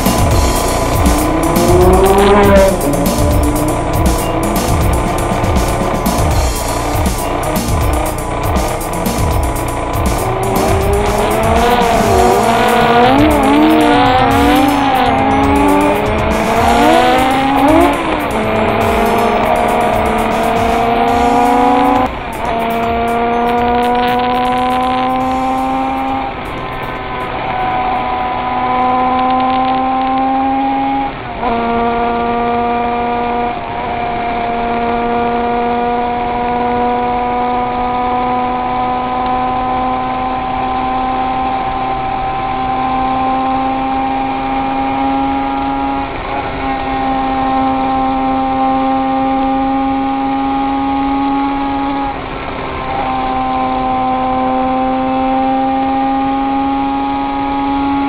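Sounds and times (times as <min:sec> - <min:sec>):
motorcycle engine running: 0:00.0 - 0:30.5
gear changes: 0:00.0 - 0:58.0.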